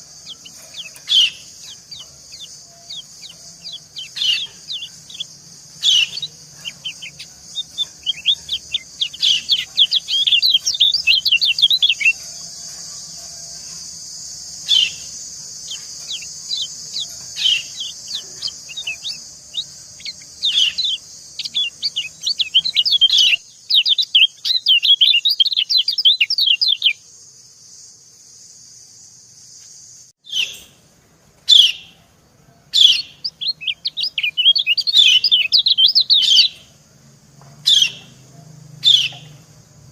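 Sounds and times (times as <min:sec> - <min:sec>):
white-eyes chirping: 0:00.0 - 0:27.0, 0:32.8 - 0:36.7, 0:38.8 - 0:39.5.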